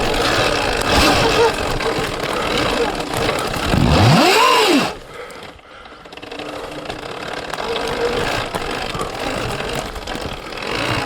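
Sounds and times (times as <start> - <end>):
chain and chassis clicks: 0.0 - 11.0
electric motor whine: 2.7 - 5.0.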